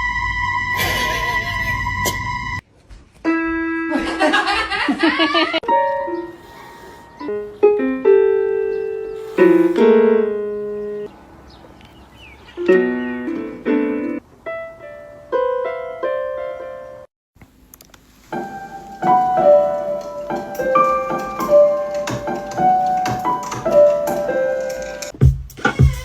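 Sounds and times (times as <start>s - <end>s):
piano music: 3.3s - 4.7s, 5.6s - 11.5s, 12.5s - 17.1s, 18.3s - 26.0s.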